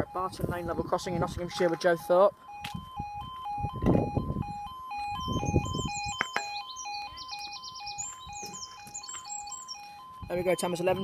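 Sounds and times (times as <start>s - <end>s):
level crossing two-tone alarm: 0.0s - 11.0s.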